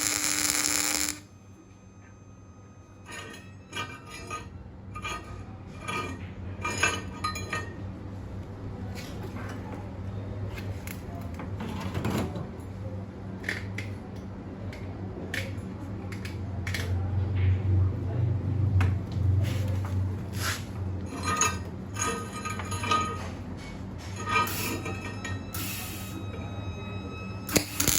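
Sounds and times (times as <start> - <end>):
steady low hum: 0.0 - 2.8.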